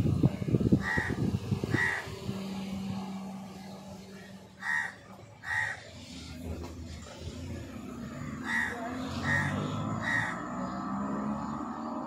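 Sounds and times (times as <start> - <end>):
harsh crow-like bird calls: 0.8 - 2.3, 4.6 - 6.4, 8.3 - 11.8.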